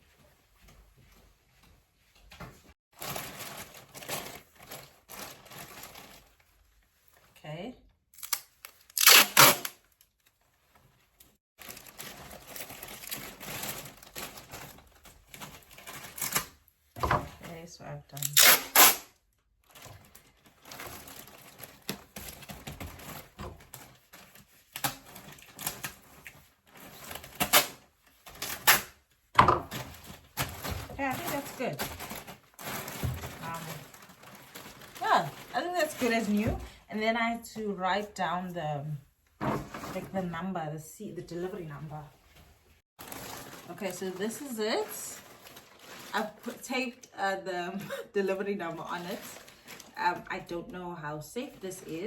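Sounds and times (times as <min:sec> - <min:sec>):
plastic bag crinkling: 0:03.0 - 0:06.8, 0:11.2 - 0:16.6, 0:19.6 - 0:29.0, 0:29.7 - 0:36.5, 0:43.0 - 0:47.0, 0:47.8 - 0:50.3
packing tape pulled off roll: 0:08.2 - 0:10.3, 0:11.7 - 0:16.6, 0:18.2 - 0:29.0.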